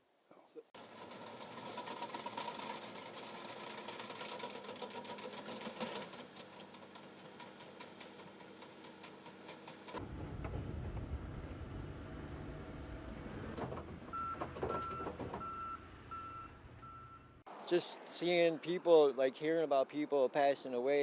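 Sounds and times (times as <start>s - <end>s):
deep loud rumble: 10.0s - 13.8s.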